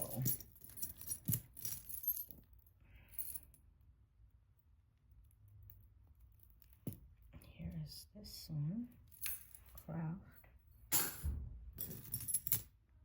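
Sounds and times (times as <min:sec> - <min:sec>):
jewelry clinking: 0:00.0 - 0:03.6, 0:08.9 - 0:10.0, 0:10.8 - 0:12.8
faint low hum: 0:00.0 - 0:13.0.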